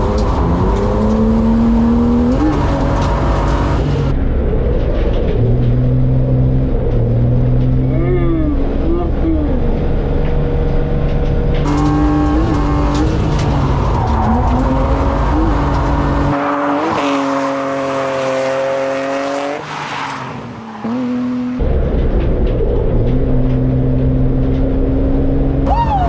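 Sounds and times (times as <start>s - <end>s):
car engine revving: 0.0s - 4.6s, 5.2s - 21.8s.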